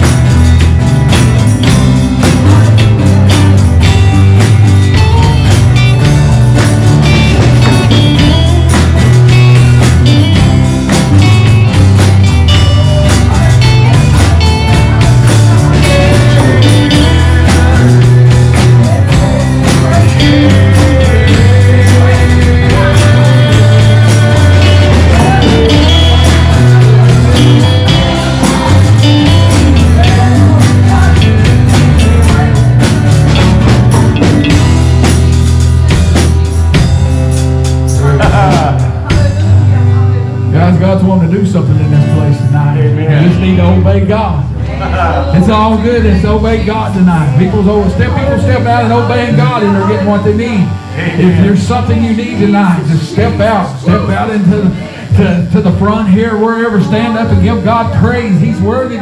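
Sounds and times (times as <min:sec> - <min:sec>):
worship band playing: 0:00.0 - 0:59.0
people singing: 0:12.5 - 0:35.2, 0:44.5 - 0:59.0.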